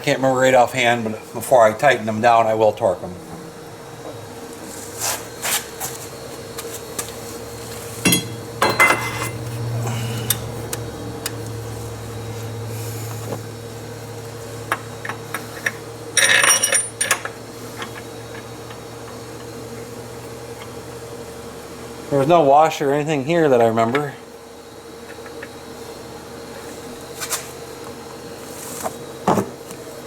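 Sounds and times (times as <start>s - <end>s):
steady low hum: 0.0s - 29.2s
metal tools clinking: 8.0s - 9.5s, 15.6s - 17.3s.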